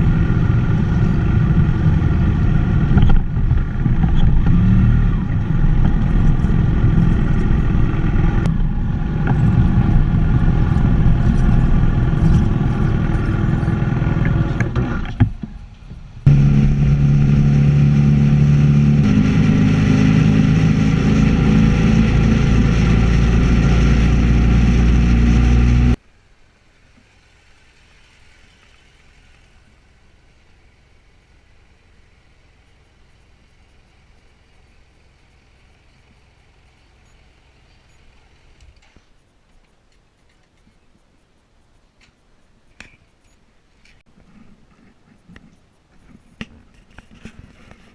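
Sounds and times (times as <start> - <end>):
motorcycle engine running: 0.0 - 15.2, 16.2 - 26.0
faint background noise: 25.9 - 47.9.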